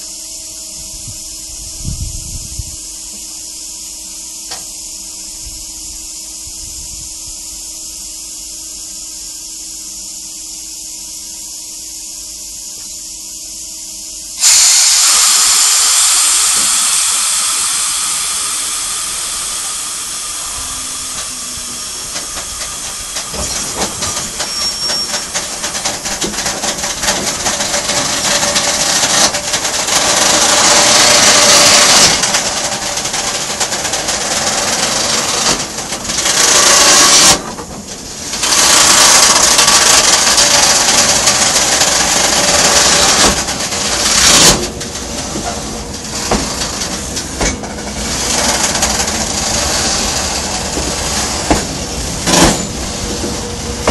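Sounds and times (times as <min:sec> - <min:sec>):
air brakes releasing hiss: 0:00.0 - 0:53.9
train low hiss and hum: 0:00.0 - 0:53.9
train wheels clicking and creaking: 0:14.4 - 0:53.9.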